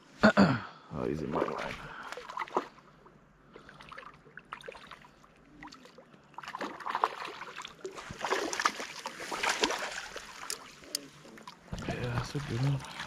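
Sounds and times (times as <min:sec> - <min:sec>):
fish splashing at surface: 0:06.4 - 0:13.0
knocks and clicks against hull: 0:11.6 - 0:12.5.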